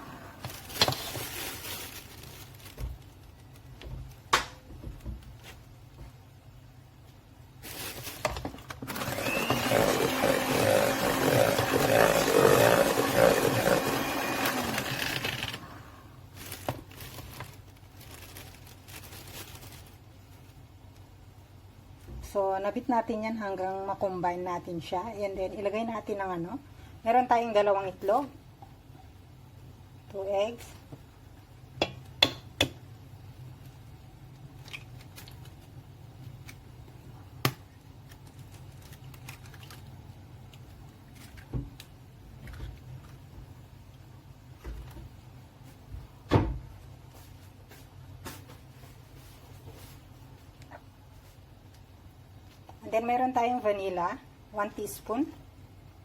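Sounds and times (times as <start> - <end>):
electric mixer beating: 8.9 - 15.6.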